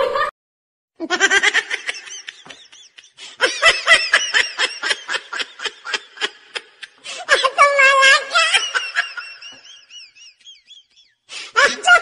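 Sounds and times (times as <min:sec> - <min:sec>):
person giggling: 0:01.0 - 0:07.5.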